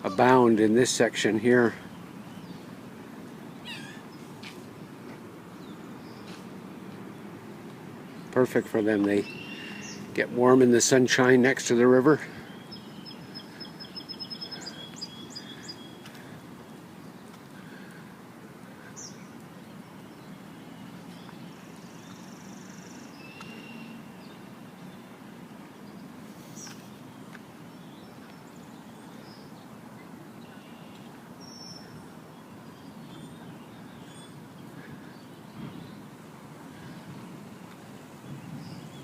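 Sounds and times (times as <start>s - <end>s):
bird chirps and calls: 3.5s - 4.3s, 8.1s - 10.2s, 12.3s - 16.1s.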